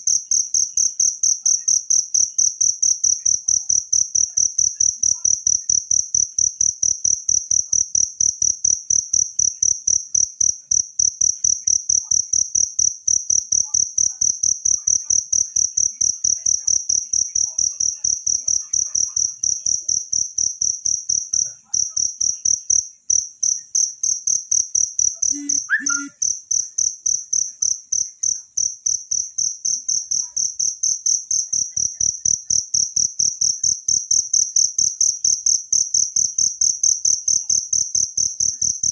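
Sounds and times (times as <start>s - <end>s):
cricket chirping: 0.1s - 18.3s, 19.2s - 30.0s.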